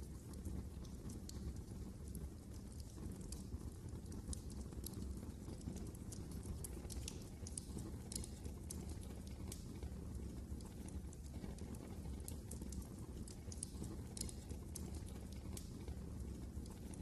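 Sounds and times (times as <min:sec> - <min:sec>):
low rumble of fire: 0:00.0 - 0:17.0
wood fire crackling: 0:00.0 - 0:17.0.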